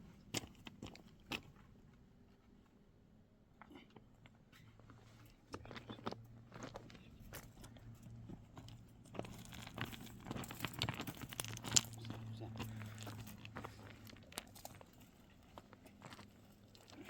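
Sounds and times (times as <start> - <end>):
faint low hum: 0.0 - 17.0
crackling and rustling of handling: 3.7 - 17.0.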